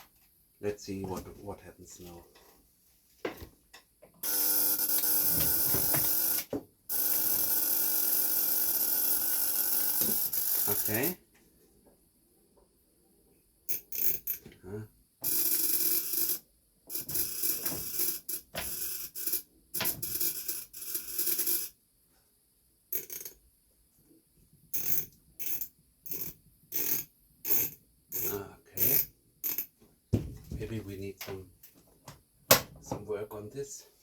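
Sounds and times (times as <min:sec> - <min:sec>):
electric spark discharge buzzing: 0:04.2 - 0:11.2.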